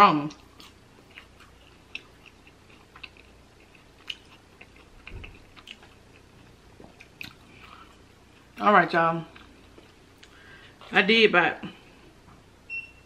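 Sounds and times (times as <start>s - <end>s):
person chewing: 0.3s - 8.6s, 9.3s - 11.0s.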